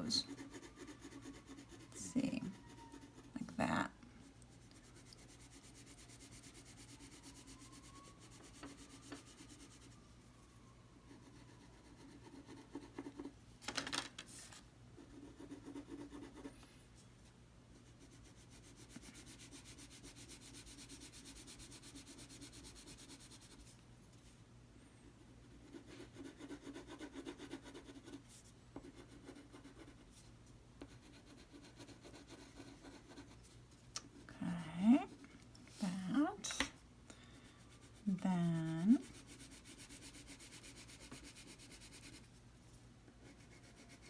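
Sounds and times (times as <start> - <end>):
crayon rubbing on paper: 37.7 - 42.3.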